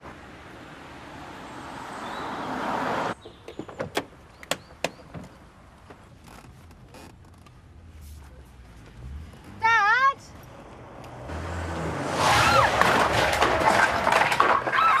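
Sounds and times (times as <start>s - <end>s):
rush of vehicle noise: 0.0s - 4.3s, 7.8s - 15.0s
sharp knocks and clatters: 12.7s - 15.0s.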